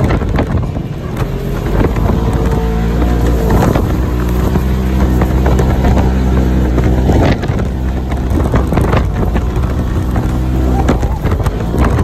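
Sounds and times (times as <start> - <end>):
atv engine running: 0.0 - 12.0
knocks and rattles over rough ground: 0.0 - 12.0.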